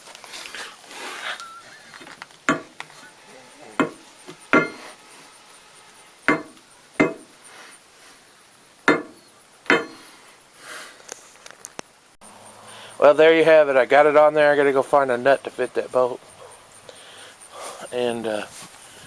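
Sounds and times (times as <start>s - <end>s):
hammer striking bolt: 3.8s - 4.8s, 6.3s - 7.3s, 8.9s - 10.0s.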